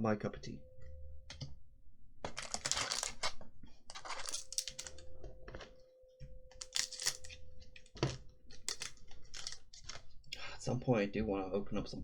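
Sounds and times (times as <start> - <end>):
cards clicking and rustling: 2.2 - 5.0, 6.5 - 10.2.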